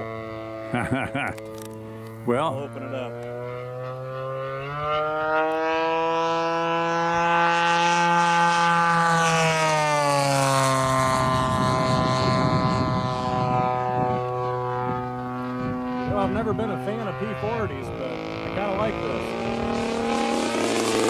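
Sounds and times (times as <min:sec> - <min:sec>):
model plane engine at full throttle: 0:00.0 - 0:21.0.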